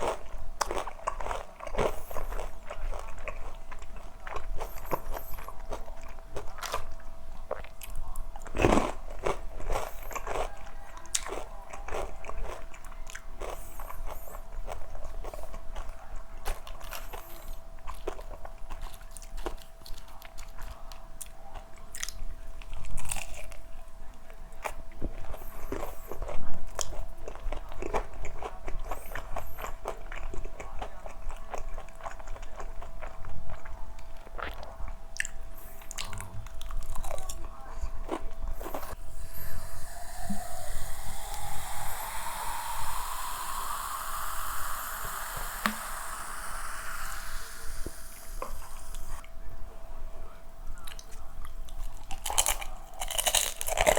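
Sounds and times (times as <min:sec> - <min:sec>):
crunchy chewing of fried chicken: 0:00.0 - 0:49.2, 0:50.8 - 0:53.9
rushing sound rising in pitch: 0:39.0 - 0:49.2.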